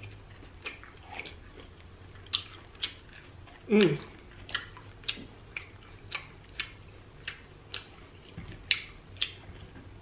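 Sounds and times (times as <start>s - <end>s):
chewing fried seafood: 0.0s - 10.0s.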